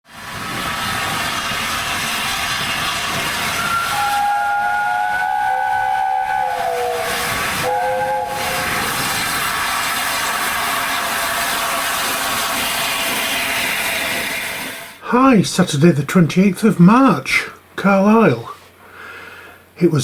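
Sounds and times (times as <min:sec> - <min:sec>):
steam locomotive whistle: 0:00.1 - 0:14.9
escaping steam hissing: 0:00.1 - 0:15.0.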